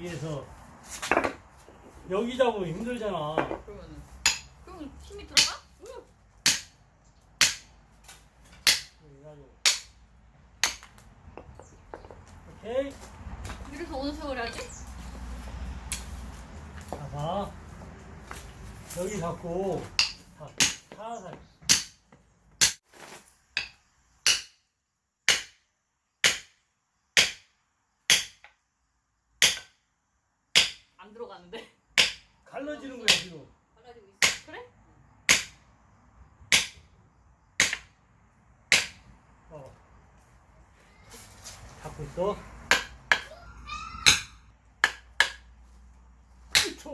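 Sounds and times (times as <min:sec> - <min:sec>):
tool striking log: 0:04.2 - 0:04.6, 0:06.4 - 0:06.8, 0:07.4 - 0:07.7, 0:08.6 - 0:09.0, 0:09.6 - 0:10.0, 0:10.6 - 0:12.2, 0:20.0 - 0:21.0, 0:21.6 - 0:22.8, 0:23.6 - 0:24.6, 0:25.3 - 0:25.6, 0:26.2 - 0:26.6, 0:27.2 - 0:27.5, 0:28.1 - 0:28.6, 0:29.4 - 0:29.8, 0:30.5 - 0:30.9, 0:32.0 - 0:32.3, 0:33.1 - 0:33.4, 0:34.2 - 0:34.5, 0:35.3 - 0:35.6, 0:36.5 - 0:36.8, 0:37.6 - 0:38.0, 0:38.7 - 0:39.0, 0:42.7 - 0:43.3, 0:44.0 - 0:45.5, 0:46.5 - 0:46.9.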